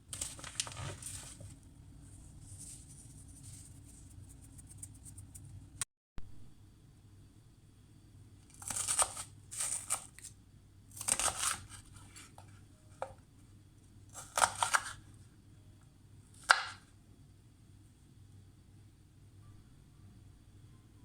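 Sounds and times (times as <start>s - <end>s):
food being prepared by hand: 0.0s - 5.8s, 8.4s - 15.3s.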